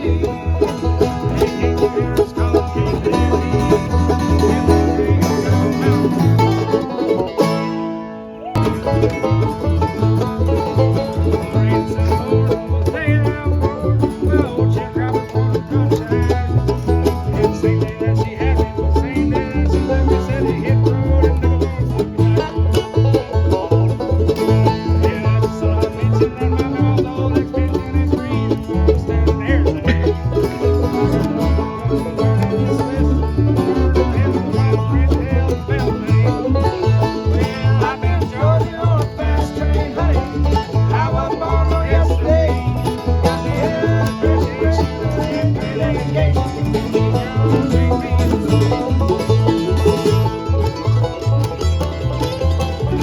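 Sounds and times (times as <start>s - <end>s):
banjo picking: 0.0s - 53.0s
bass line: 0.0s - 53.0s
bluegrass band playing: 0.0s - 53.0s.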